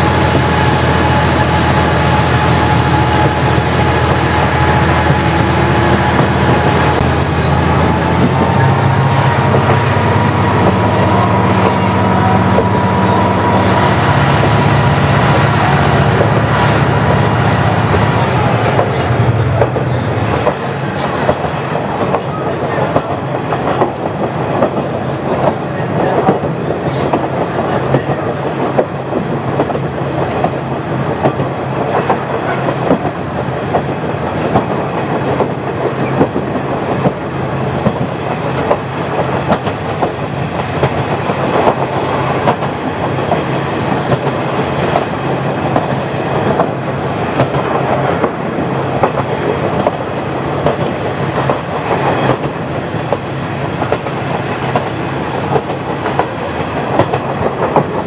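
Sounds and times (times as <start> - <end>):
wheels clacking over rail joints: 14.5 - 58.0.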